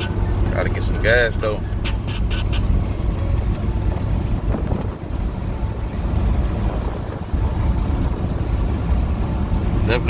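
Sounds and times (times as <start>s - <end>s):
car driving rumble: 0.0s - 10.0s
wind buffeting microphone: 2.7s - 9.9s.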